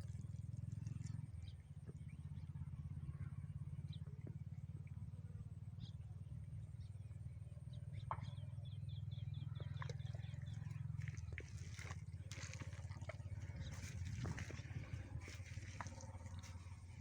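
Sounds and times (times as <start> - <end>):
small birds chirping: 0.0 - 17.0
tractor engine running: 7.3 - 17.0.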